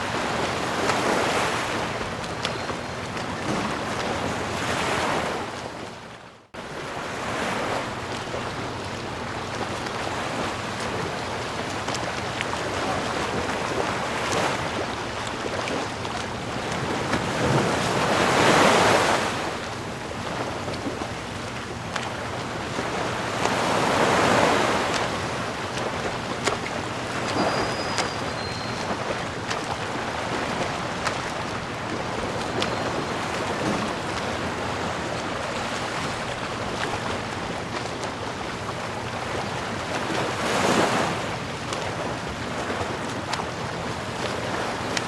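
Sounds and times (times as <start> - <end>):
ocean waves washing: 0.0 - 45.0.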